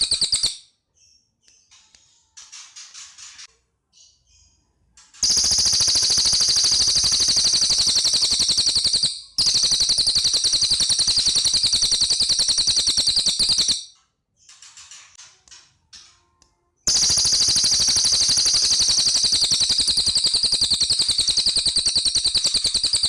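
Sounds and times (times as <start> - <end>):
bird rattling trill: 0.0 - 0.6, 5.2 - 13.9, 16.9 - 23.0
faint bird chirps: 0.0 - 23.0.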